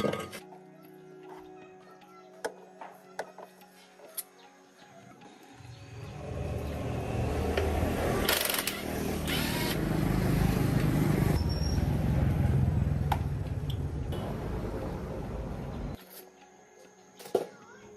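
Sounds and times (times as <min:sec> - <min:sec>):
engine starting and running: 0:05.9 - 0:15.9.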